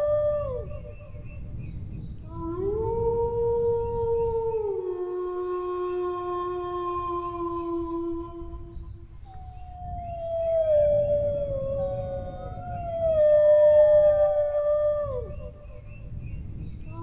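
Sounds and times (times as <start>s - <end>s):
dog howling: 2.3s - 15.8s.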